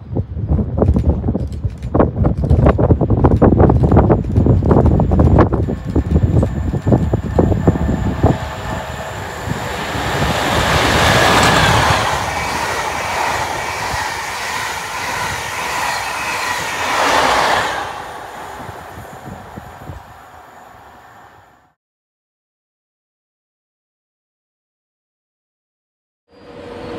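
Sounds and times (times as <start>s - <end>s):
train passing: 2.6s - 21.8s.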